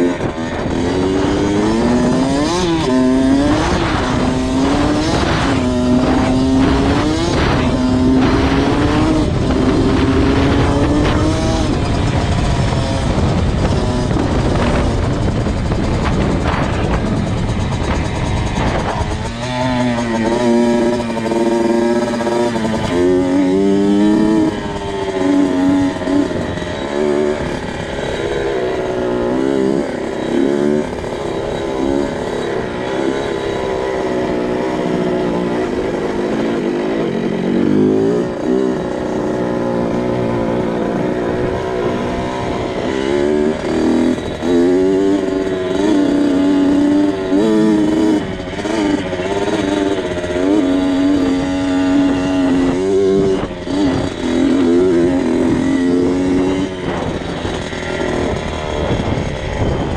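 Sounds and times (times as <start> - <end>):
two-stroke motorcycle engine revving: 0.0 - 59.9.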